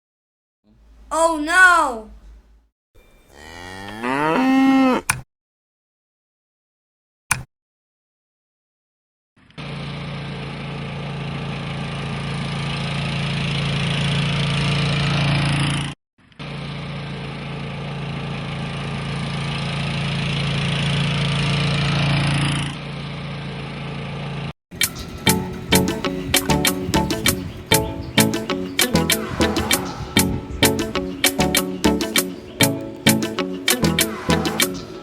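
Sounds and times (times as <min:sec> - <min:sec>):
small engine running: 0:09.4 - 0:15.6.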